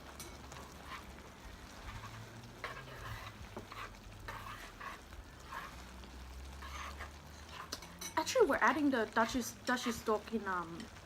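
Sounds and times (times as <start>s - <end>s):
hotpot simmering sizzle: 0.0s - 11.0s
utensils scraping in pot: 0.1s - 8.4s.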